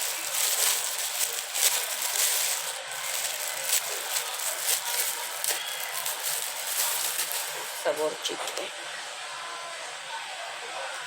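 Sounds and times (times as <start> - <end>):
box rubbing and rustling: 0.0 - 8.0.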